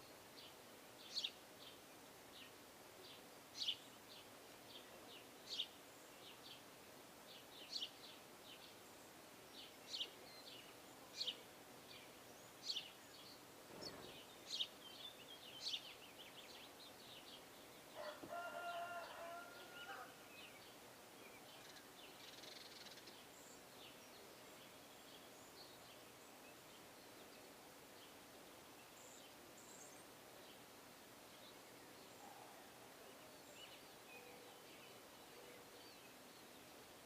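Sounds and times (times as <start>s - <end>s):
faint bird chirps: 21.3s - 27.6s.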